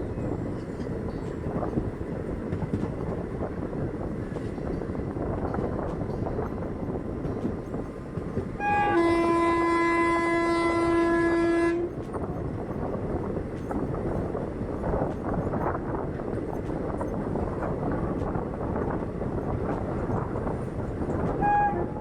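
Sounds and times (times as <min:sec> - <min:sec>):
train horn: 0:08.6 - 0:12.0, 0:21.2 - 0:22.0.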